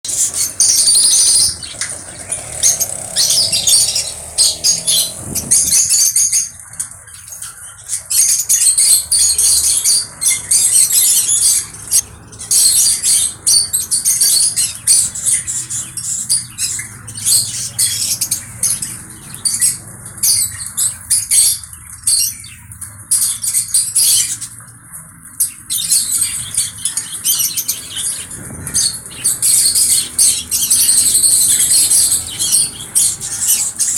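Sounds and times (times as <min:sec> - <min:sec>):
parrot chirping and squawking: 0:00.1 - 0:06.6, 0:07.4 - 0:22.4, 0:25.7 - 0:33.9.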